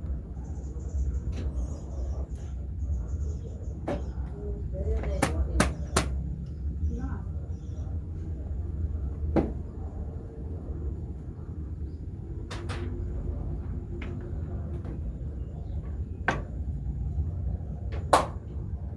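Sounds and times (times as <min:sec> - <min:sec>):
low rumble: 0:06.1 - 0:18.9.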